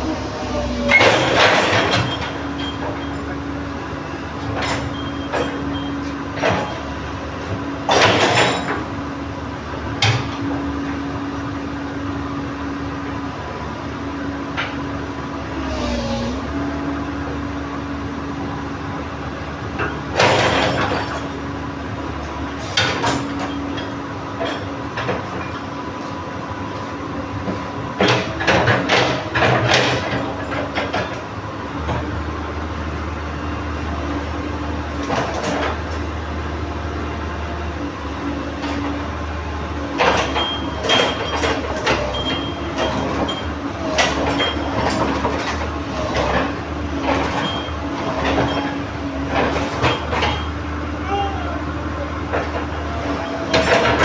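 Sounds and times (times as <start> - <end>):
excavator diesel engine running: 0.0 - 54.0
metal clanks on steel track: 0.9 - 9.1, 19.7 - 32.5, 38.6 - 54.0.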